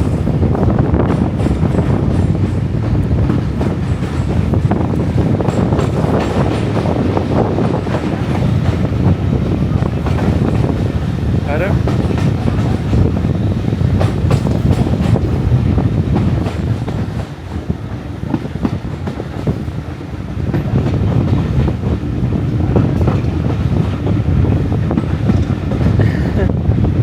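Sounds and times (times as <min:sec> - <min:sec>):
train rumbling: 0:00.0 - 0:27.0
wheels clicking over rail joints: 0:01.1 - 0:08.9.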